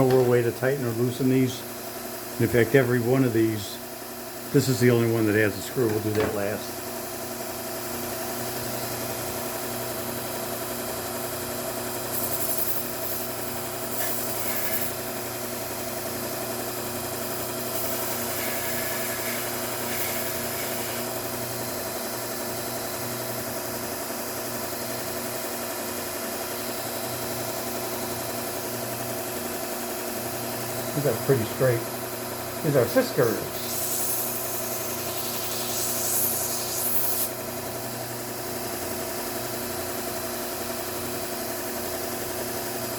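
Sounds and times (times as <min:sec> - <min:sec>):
belt grinder motor hum: 0:12.0 - 0:15.1, 0:17.4 - 0:21.5, 0:33.0 - 0:37.5
blade grinding hiss: 0:12.1 - 0:15.0, 0:17.6 - 0:21.2, 0:33.0 - 0:37.4.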